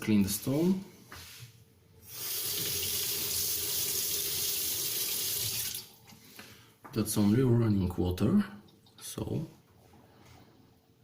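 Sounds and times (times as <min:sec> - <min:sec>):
tap water rinsing a stone: 0:02.1 - 0:06.0.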